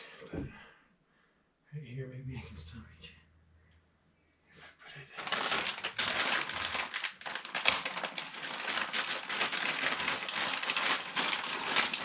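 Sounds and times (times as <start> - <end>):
plastic crinkling: 5.1 - 12.0.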